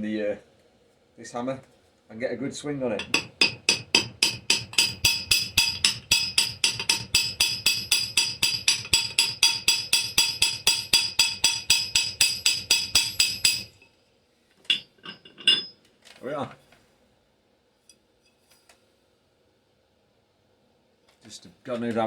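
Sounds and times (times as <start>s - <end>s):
hammer peening metal rivets: 3.0s - 13.8s.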